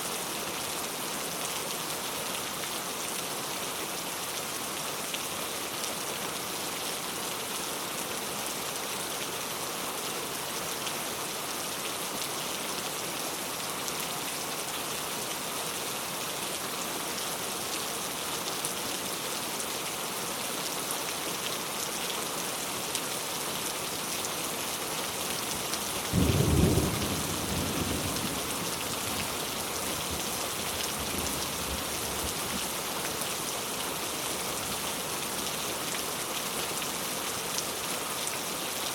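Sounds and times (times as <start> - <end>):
heavy rain falling: 0.2 - 38.9
thunderclap rumbling: 26.2 - 28.7.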